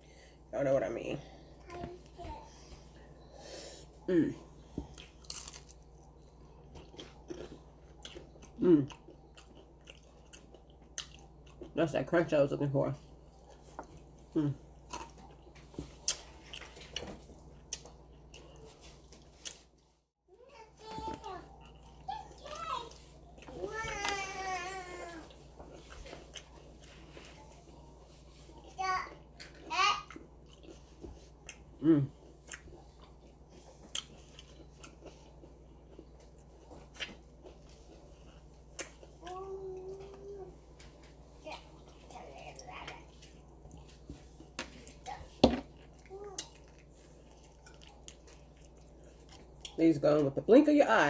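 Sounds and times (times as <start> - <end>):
person chewing crunchy food: 4.4 - 11.8, 13.0 - 19.8, 21.4 - 28.7, 29.4 - 39.9, 41.7 - 49.8
crunchy taco shell chewing: 5.0 - 11.7.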